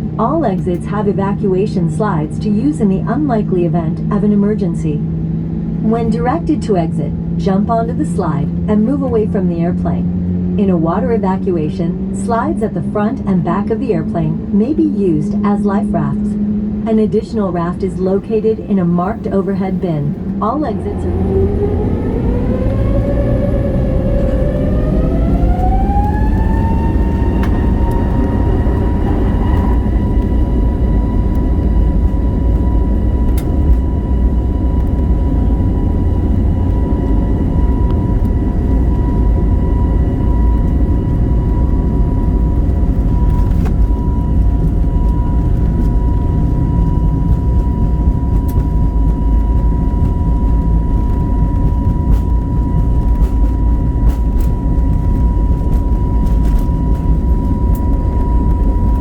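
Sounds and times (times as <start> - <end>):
jet engines rumbling in cabin: 0.0 - 59.0
steady high tone: 5.8 - 31.3.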